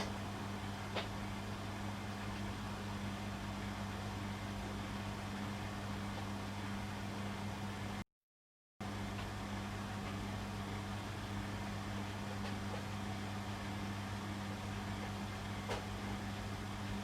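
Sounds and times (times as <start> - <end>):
electrical hum: 0.0 - 8.0, 8.8 - 17.0
washing machine running: 8.8 - 17.0.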